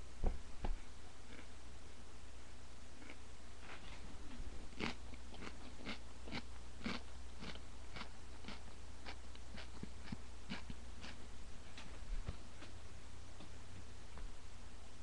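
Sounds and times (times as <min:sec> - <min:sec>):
person chewing crunchy pepper: 0:01.3 - 0:01.5, 0:03.0 - 0:11.2.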